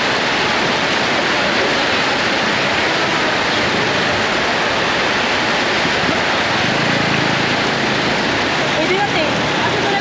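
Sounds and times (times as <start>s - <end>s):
heavy rain downpour: 0.0s - 10.0s.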